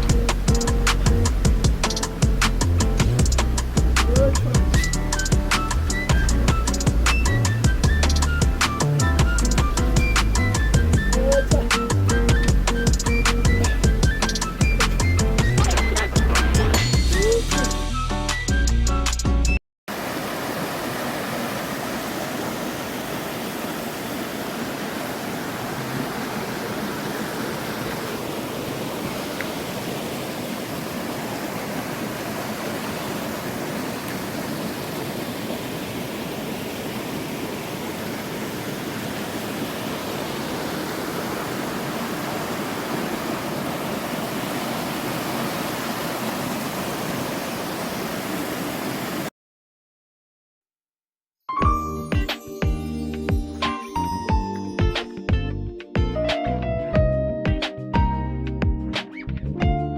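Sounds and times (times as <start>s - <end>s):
stream water rushing: 0.0s - 17.8s, 19.9s - 49.3s.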